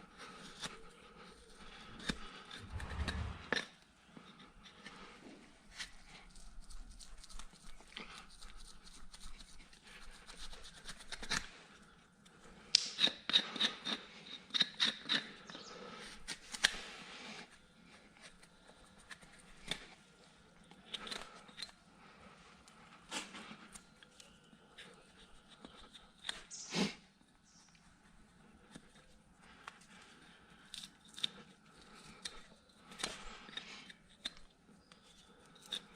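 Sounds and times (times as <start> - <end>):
hand tools scraping hoof: 0.3 - 5.1, 12.7 - 16.8.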